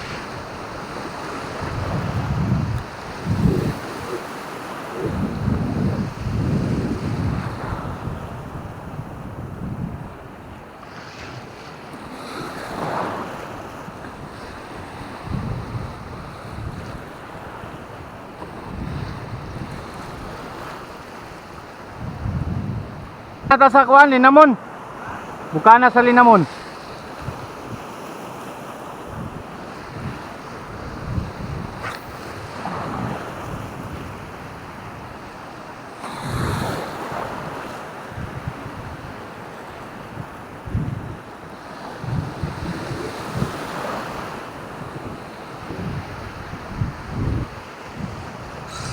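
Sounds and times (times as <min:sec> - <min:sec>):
wind buffeting microphone: 0:00.0 - 0:23.5, 0:26.4 - 0:27.9, 0:28.9 - 0:35.6, 0:36.2 - 0:48.9
waves washing on shore: 0:00.0 - 0:48.9.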